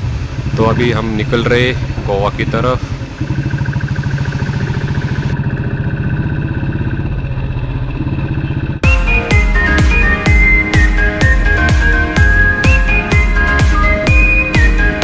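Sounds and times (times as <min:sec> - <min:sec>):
motorcycle engine running: 0:00.0 - 0:15.0
electronic music with bass beat: 0:08.8 - 0:15.0.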